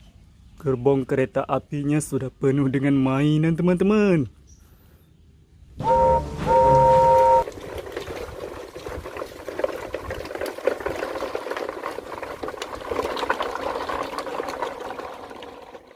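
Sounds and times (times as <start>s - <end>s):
toy train horn: 5.8s - 7.4s.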